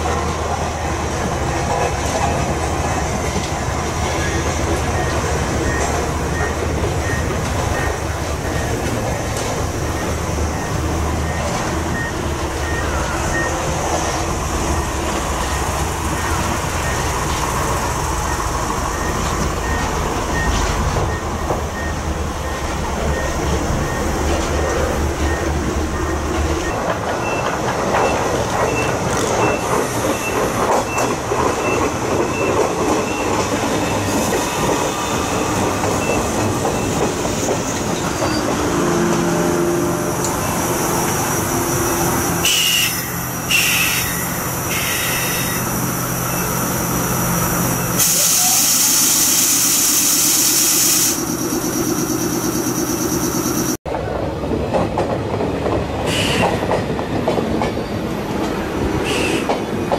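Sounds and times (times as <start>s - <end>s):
steady train hum: 0.0s - 59.9s
train rumbling: 0.0s - 59.9s
train wheels clattering on rails: 0.0s - 59.9s
air brake hisses: 42.4s - 45.7s, 47.9s - 51.8s.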